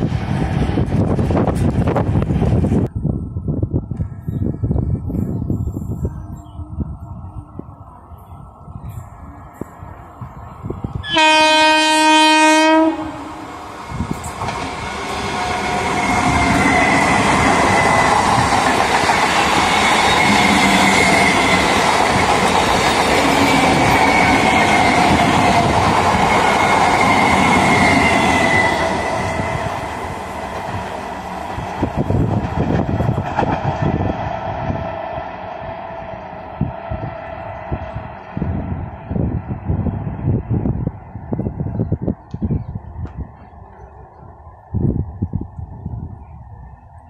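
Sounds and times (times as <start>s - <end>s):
train wheels running on rails: 0.0s - 11.4s, 12.8s - 47.0s
train horn blast: 11.0s - 13.5s.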